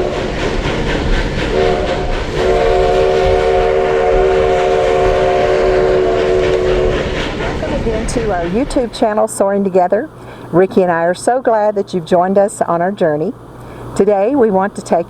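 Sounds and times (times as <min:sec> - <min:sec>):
steam locomotive whistle chord: 0:00.0 - 0:00.6, 0:01.4 - 0:09.2
rumble of moving train: 0:00.0 - 0:15.0.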